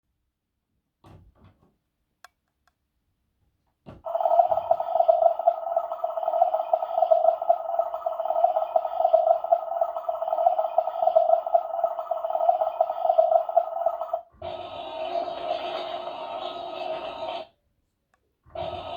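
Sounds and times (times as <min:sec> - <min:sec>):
toy motor buzzing hum: 0:04.2 - 0:17.5.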